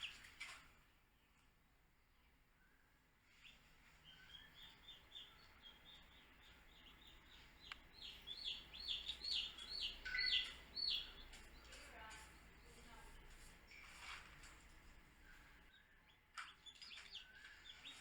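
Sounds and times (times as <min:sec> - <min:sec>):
baby chicks peeping: 0:03.3 - 0:14.0, 0:15.2 - 0:18.0.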